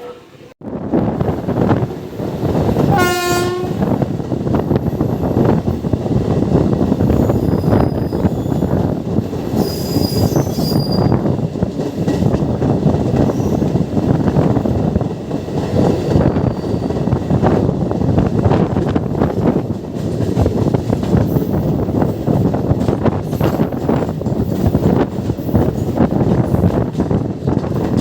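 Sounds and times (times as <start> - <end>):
train wheels rumbling and clattering: 0.6 - 28.0
train horn note: 2.9 - 3.9
high wheel squeals: 9.6 - 11.2.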